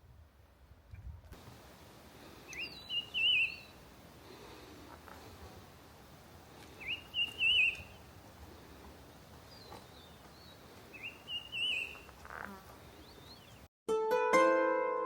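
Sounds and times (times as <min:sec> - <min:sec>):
forest background hiss: 0:01.4 - 0:13.6
songbird singing: 0:02.2 - 0:05.4, 0:06.5 - 0:13.7.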